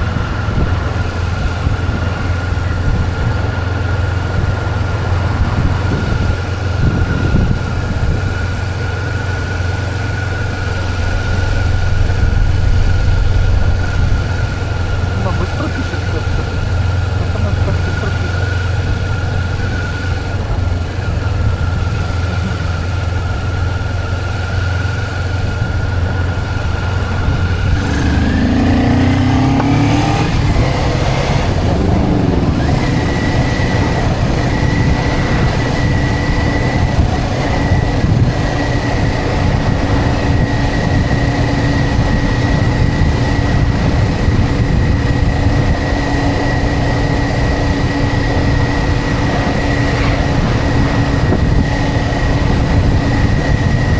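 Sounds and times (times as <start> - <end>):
motorcycle engine running: 0.0 - 53.9
wind noise: 0.0 - 53.9.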